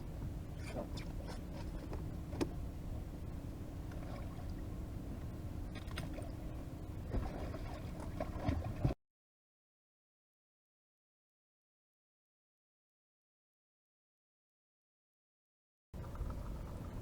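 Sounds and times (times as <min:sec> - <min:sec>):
knocks and clicks on boat: 0:00.0 - 0:02.7, 0:03.8 - 0:06.4, 0:07.1 - 0:09.0
wind and water rumble: 0:00.0 - 0:09.0, 0:16.0 - 0:17.0.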